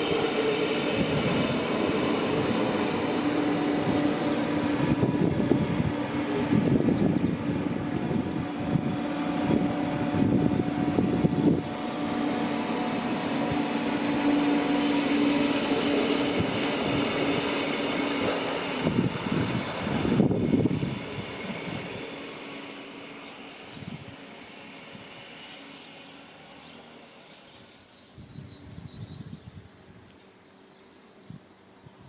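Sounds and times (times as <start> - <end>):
train rattles: 0.0 - 25.5
train wheels rumbling on rails: 0.0 - 27.9.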